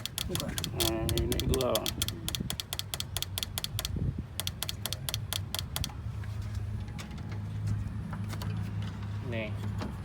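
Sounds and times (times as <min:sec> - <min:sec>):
rapid mechanical clicking: 0:00.0 - 0:06.0.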